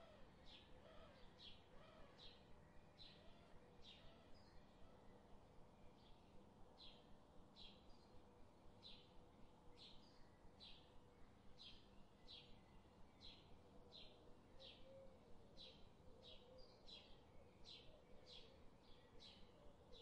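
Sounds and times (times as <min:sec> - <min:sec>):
faint bird chirping: 0:08.8 - 0:20.0.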